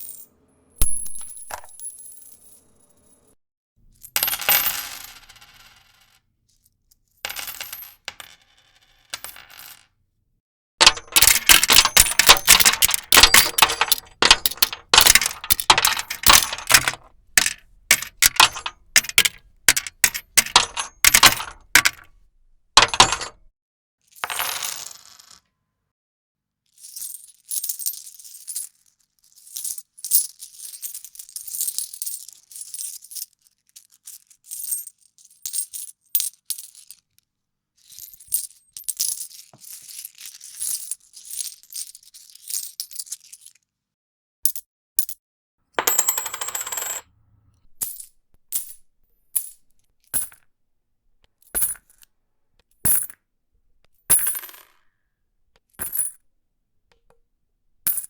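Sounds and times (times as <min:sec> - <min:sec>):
coins jingling and clinking: 0:00.0 - 0:03.2, 0:07.3 - 0:09.8, 0:10.8 - 0:23.5, 0:29.7 - 0:37.0, 0:37.9 - 0:43.5, 0:45.8 - 0:47.0, 0:47.6 - 0:50.4, 0:51.5 - 0:52.0, 0:52.9 - 0:54.8, 0:55.8 - 0:56.2.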